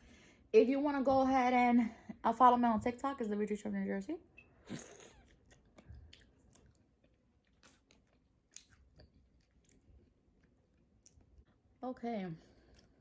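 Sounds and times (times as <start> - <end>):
chewing oysters: 4.8 - 11.7.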